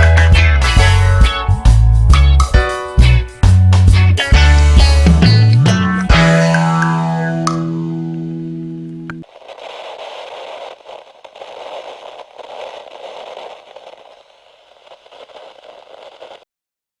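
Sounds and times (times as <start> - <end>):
uneven rushing hiss: 9.2 - 16.4.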